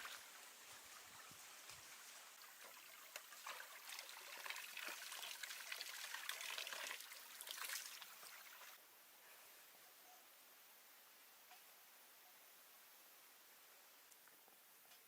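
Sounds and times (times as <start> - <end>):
water trickling: 0.0 - 8.8.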